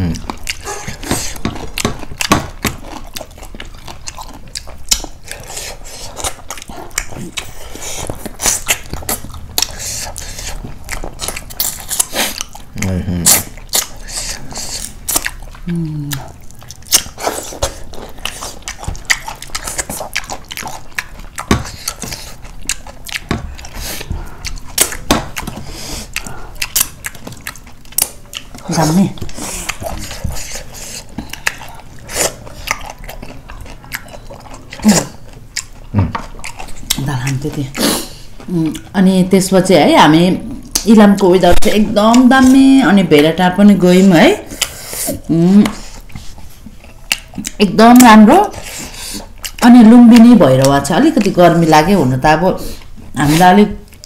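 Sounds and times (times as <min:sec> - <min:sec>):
people chewing with wet smacks: 0:00.0 - 0:54.0.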